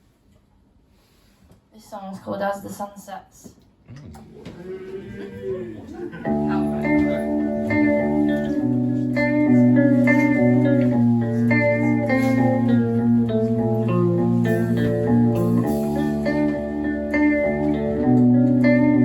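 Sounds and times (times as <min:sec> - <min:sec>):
guitar picked notes: 0:06.2 - 0:19.0.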